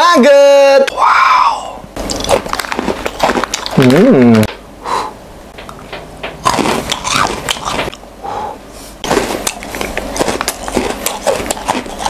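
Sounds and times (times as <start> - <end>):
crisp crunching and mouth clicks: 2.0 - 4.4, 6.4 - 8.0, 9.0 - 12.0.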